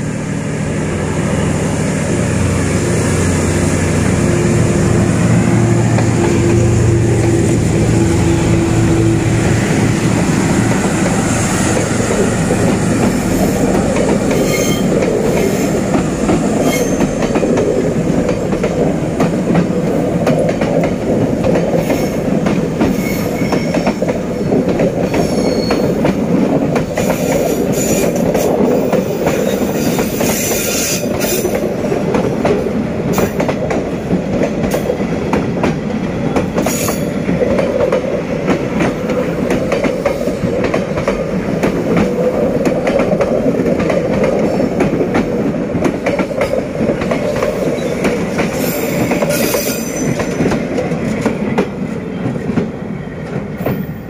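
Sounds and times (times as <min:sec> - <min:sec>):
train wheels rumbling on rail: 0:00.0 - 0:54.0
high wheel squeals: 0:14.3 - 0:15.7, 0:22.9 - 0:24.0, 0:25.2 - 0:26.0.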